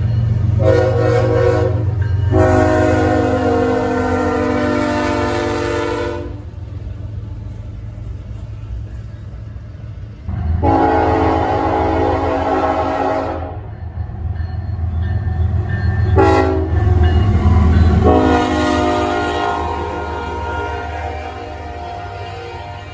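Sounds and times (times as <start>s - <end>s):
train rumble: 0.0s - 22.9s
locomotive horn blasts: 0.6s - 6.5s, 10.3s - 13.7s, 16.2s - 22.9s.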